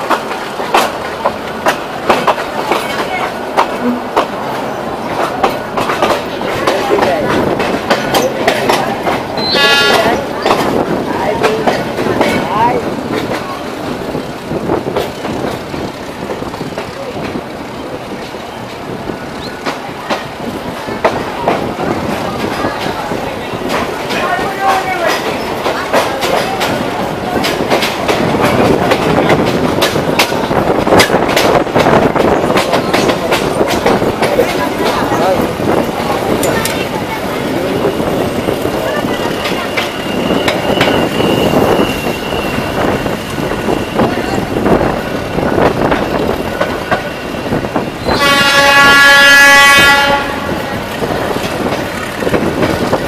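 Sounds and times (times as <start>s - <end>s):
train rumble: 0.0s - 53.0s
train wheels clattering over rail joints: 0.0s - 53.0s
train air horn blast: 9.4s - 10.2s, 48.0s - 50.7s.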